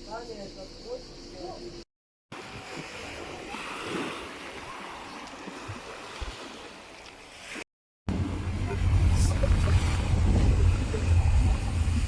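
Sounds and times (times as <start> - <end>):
sea surf washing in: 2.4 - 12.0.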